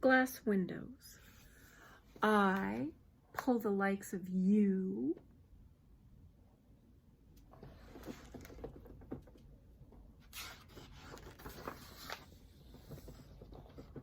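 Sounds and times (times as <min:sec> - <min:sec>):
picture book pages rustling: 0:07.5 - 0:09.2, 0:10.2 - 0:14.0.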